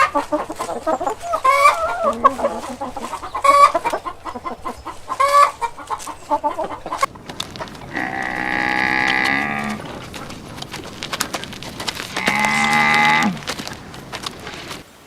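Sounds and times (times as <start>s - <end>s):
hen clucking: 0.0s - 14.8s
cow mooing: 1.5s - 2.8s, 7.8s - 10.1s, 12.2s - 13.5s.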